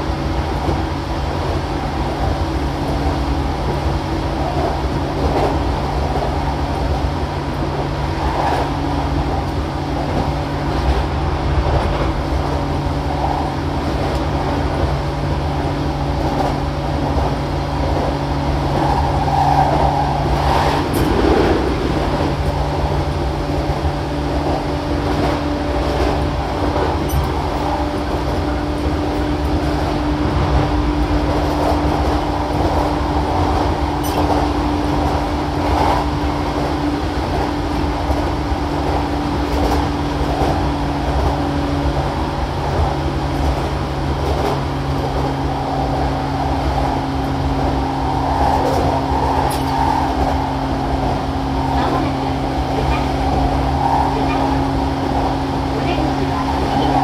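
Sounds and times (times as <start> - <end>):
train motor hum: 0.0 - 57.0
wheels rumbling on rail: 0.0 - 57.0.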